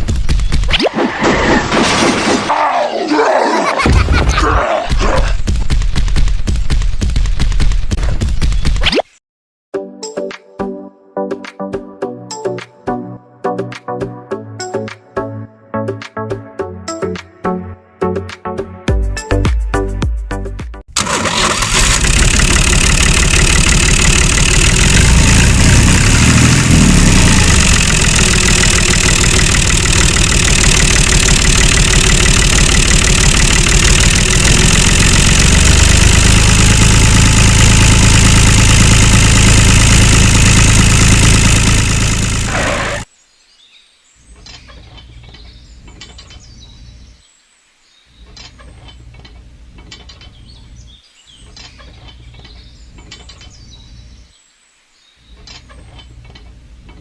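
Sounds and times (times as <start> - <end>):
small engine running: 21.0 - 43.1
mechanical parts clicking and rattling: 21.9 - 25.1, 27.1 - 42.4.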